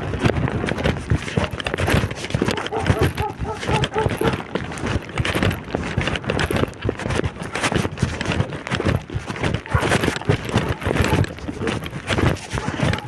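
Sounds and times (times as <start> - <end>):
wind buffeting microphone: 0.0 - 13.0
knocks and thumps: 0.1 - 7.2.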